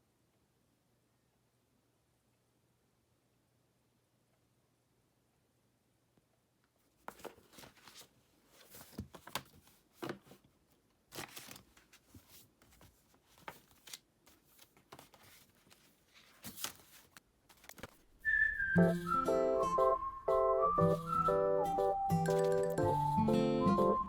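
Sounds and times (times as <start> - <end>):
paper rustling and crinkling: 6.9 - 18.2.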